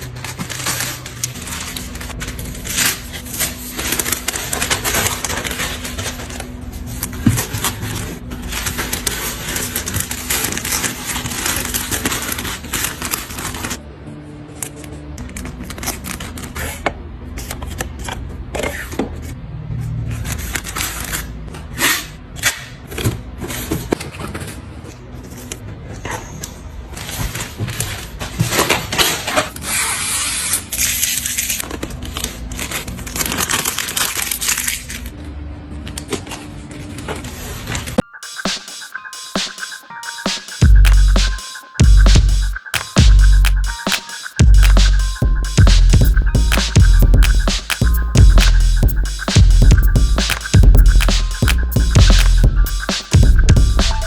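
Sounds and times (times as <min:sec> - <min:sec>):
faint music: 0:00.0 - 0:18.5, 0:31.4 - 0:54.0.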